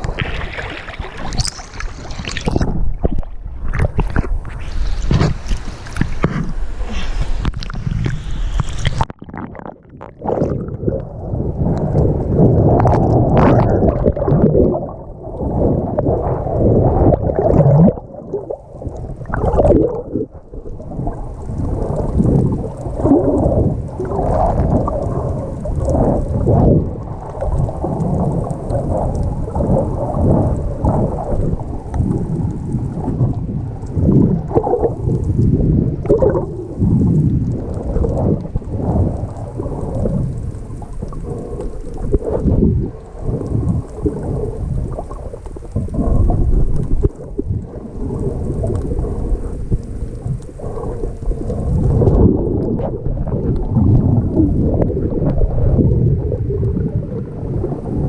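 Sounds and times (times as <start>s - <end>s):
water sloshing along boat hull: 0.0s - 9.1s.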